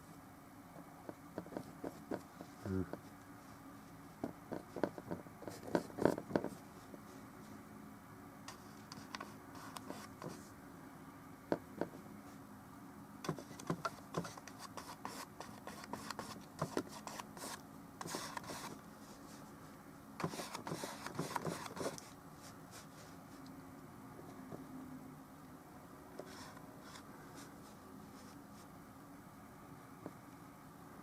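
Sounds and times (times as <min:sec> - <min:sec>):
paintbrush scraping on canvas: 0:13.3 - 0:19.5, 0:20.2 - 0:23.4.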